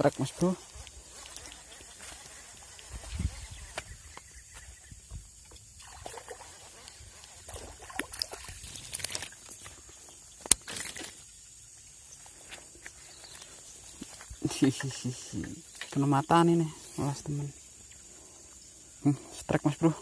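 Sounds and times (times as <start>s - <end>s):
water sloshing and splashing: 5.4s - 9.9s
fishing gear clicks and knocks: 6.8s - 11.3s.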